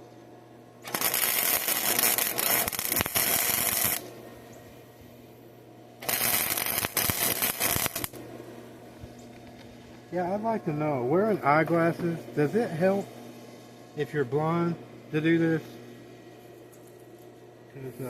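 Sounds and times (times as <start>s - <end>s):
electric arc welding crackling: 0.8s - 4.2s, 6.0s - 8.2s.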